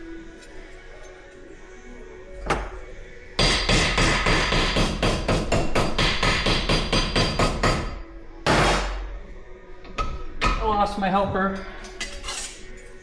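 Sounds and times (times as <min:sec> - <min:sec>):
rapid hammer blows on metal: 0:03.4 - 0:09.0.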